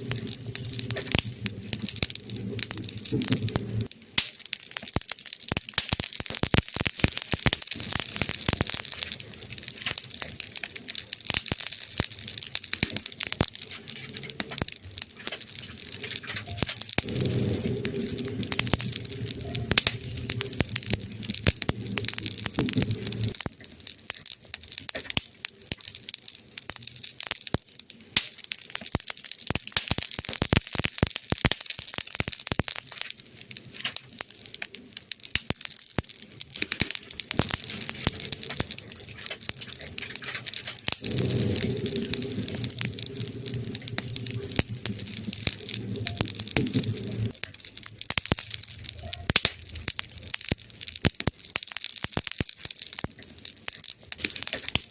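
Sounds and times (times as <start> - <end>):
low rumble: 0.0 - 3.9, 13.2 - 23.5, 37.4 - 49.0
wood fire crackling: 0.0 - 54.9.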